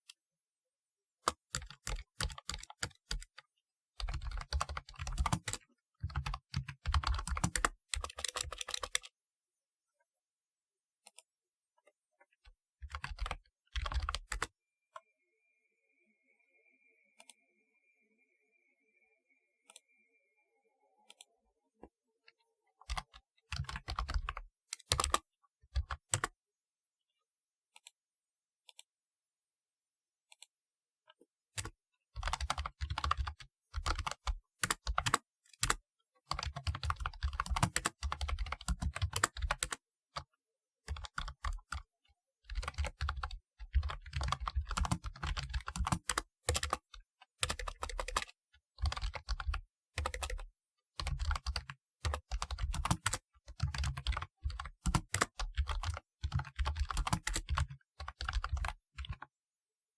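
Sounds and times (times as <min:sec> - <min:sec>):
clacky keyboard typing: 0:01.3 - 0:03.4, 0:04.0 - 0:09.1, 0:12.8 - 0:14.5, 0:22.9 - 0:25.2, 0:25.8 - 0:26.4, 0:31.6 - 0:40.3, 0:40.9 - 0:41.9, 0:42.5 - 0:59.3.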